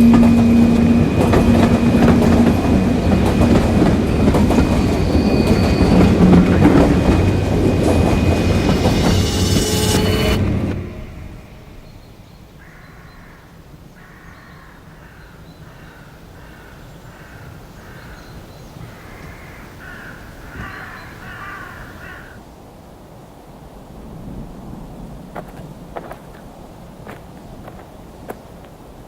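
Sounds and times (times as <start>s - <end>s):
crow-like harsh cawing: 12.6s - 18.2s, 18.8s - 22.4s.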